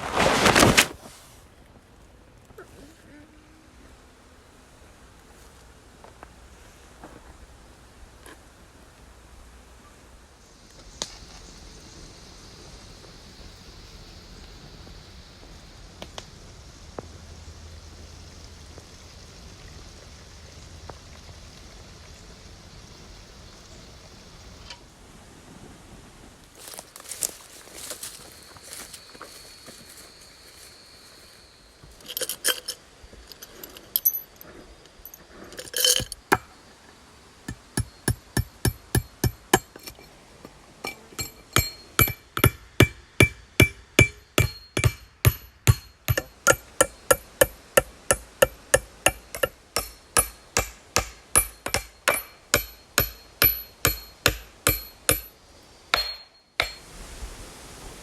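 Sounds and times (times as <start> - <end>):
hammer strikes with metallic ring: 37.5 - 40.0, 40.8 - 55.3, 56.0 - 56.8.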